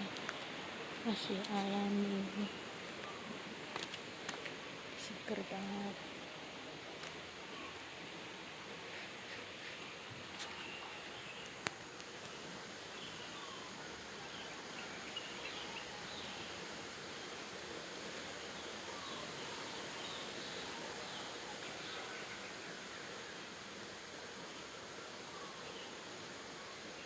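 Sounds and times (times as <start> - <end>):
flowing water rushing: 0.0 - 27.0
faint bird chirps: 10.4 - 16.6, 18.6 - 23.1, 25.3 - 26.0.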